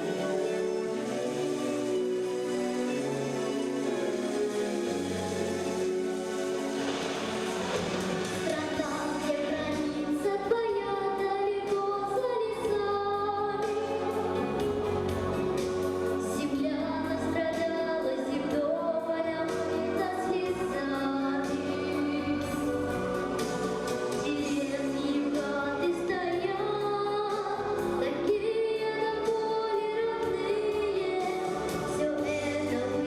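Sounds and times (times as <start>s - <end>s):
instrumental accompaniment: 0.0s - 33.0s.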